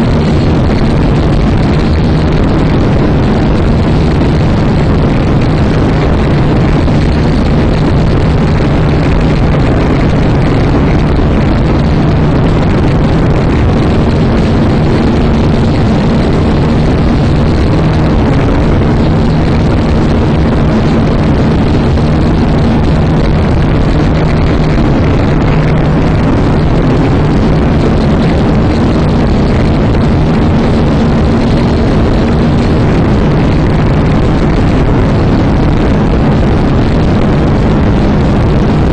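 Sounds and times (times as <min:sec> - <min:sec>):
drone propellers whirring: 0:00.0 - 0:38.9
wind noise on microphone: 0:00.0 - 0:38.9.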